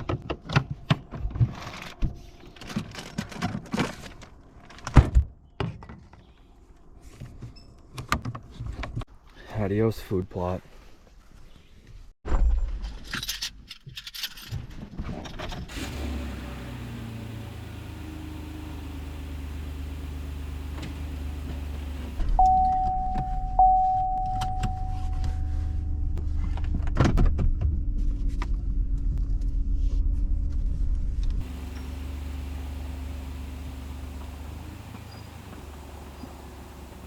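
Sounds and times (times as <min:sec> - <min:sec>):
truck engine running: 0:15.7 - 0:22.2, 0:31.4 - 0:37.0
dashboard chime: 0:22.4 - 0:25.9
truck rumbling over rough ground: 0:30.6 - 0:37.0.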